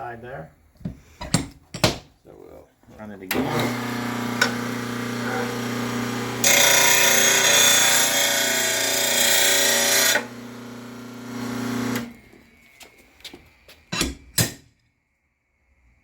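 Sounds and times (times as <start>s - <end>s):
sharpener motor humming: 3.5s - 12.1s.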